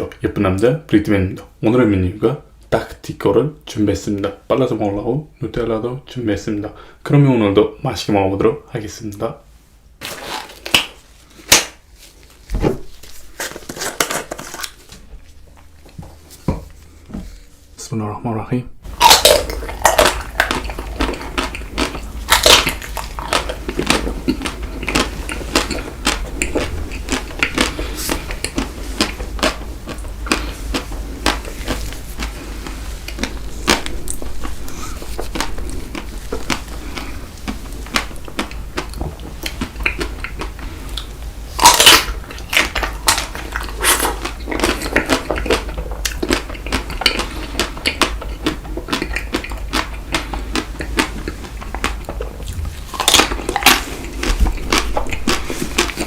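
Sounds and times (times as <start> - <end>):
steady low hum: 0.0 - 56.0
biting and chewing: 18.9 - 56.0.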